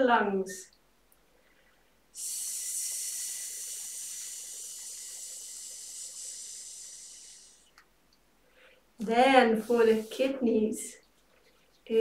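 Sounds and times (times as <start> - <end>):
woman breathing out a hiss: 2.2 - 7.8.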